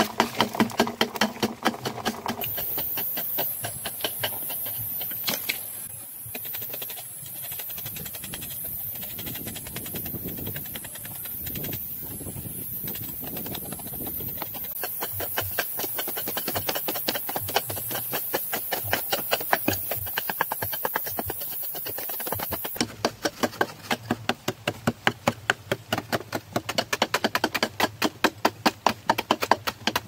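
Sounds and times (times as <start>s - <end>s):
rapid sharp clicks: 0.0s - 24.0s.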